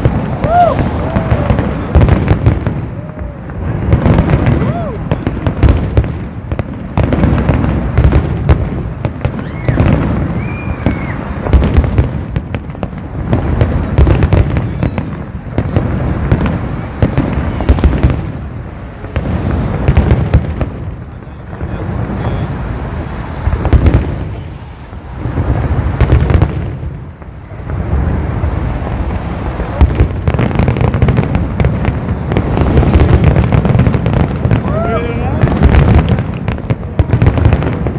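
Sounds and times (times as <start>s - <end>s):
firework whistling: 0.0s - 37.9s
fireworks bangs and crackling: 0.0s - 37.9s.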